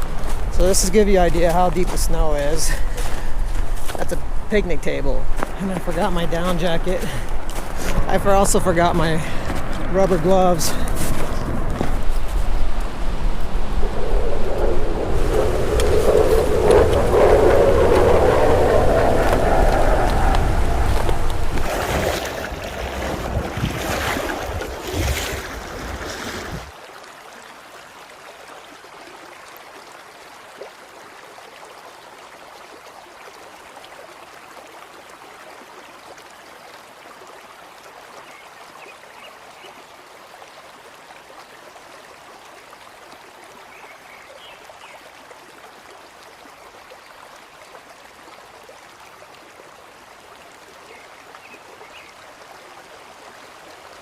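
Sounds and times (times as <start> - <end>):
wind buffeting microphone: 0.0 - 26.7
river flowing: 0.0 - 54.0.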